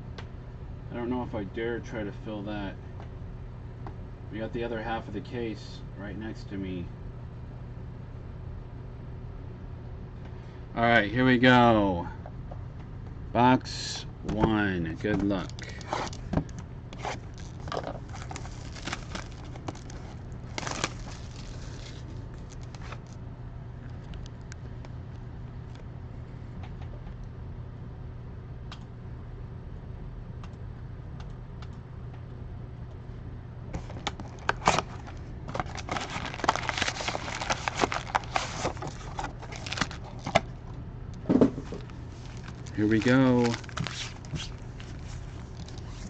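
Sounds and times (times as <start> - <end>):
plastic wrapping crinkling and tearing: 17.0 - 23.2, 33.8 - 40.5, 41.6 - 46.0.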